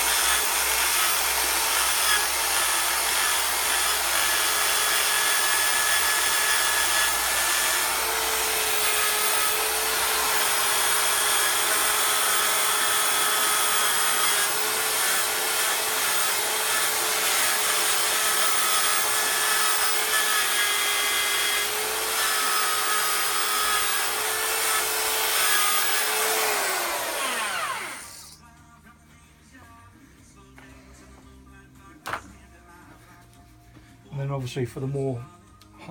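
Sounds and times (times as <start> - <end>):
power tool motor whine: 0.0 - 28.4.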